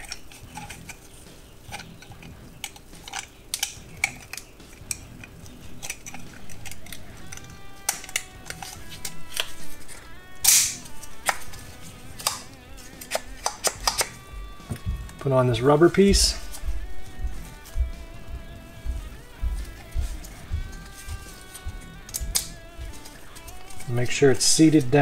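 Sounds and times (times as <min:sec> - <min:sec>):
plastic and metal parts clicking: 0:00.0 - 0:15.3.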